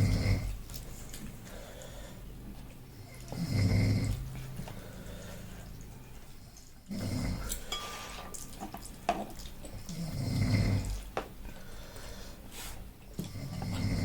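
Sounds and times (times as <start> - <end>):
utensils clinking against dishes: 7.5 - 9.3.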